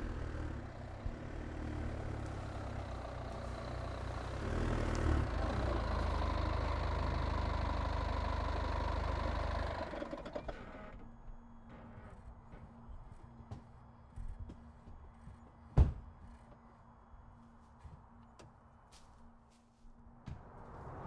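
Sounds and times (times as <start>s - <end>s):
car engine idling: 0.0s - 10.7s.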